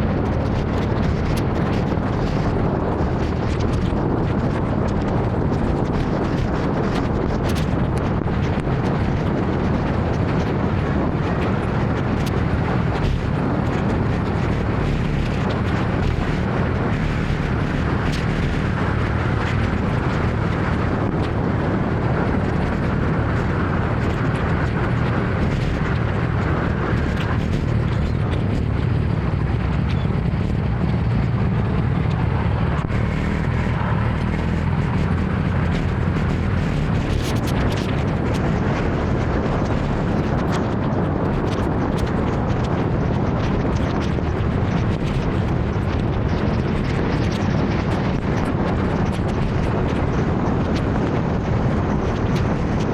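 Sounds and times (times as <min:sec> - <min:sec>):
wind rumble on microphone: 0:00.0 - 0:52.9
motor scooter road noise: 0:09.9 - 0:40.1.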